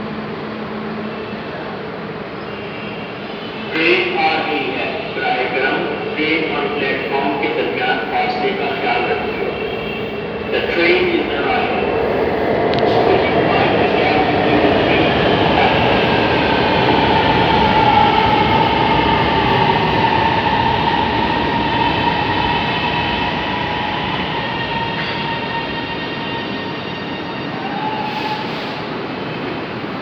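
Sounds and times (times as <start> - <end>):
electric train arriving: 0.0 - 30.0
wheel and rail noise: 8.8 - 30.0.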